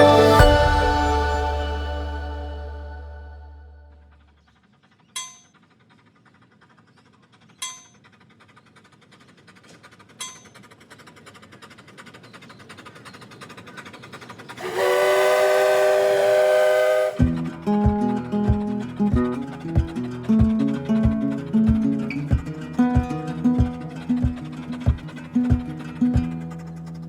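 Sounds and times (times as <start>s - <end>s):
train horn: 0.0s - 3.2s, 14.6s - 17.4s
bell strikes: 0.0s - 3.7s
train wheels clattering on rail: 4.6s - 27.0s.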